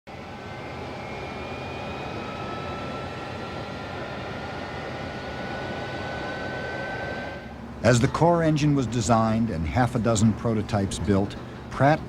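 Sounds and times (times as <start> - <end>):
jet engine whine: 0.1 - 12.0.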